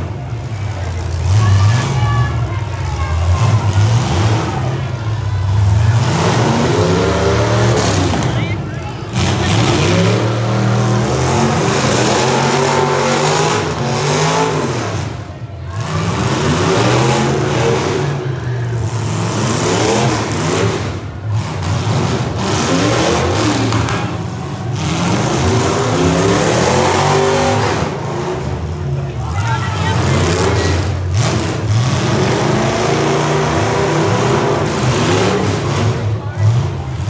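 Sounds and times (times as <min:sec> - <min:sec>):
car engines revving hard: 0:00.0 - 0:37.0.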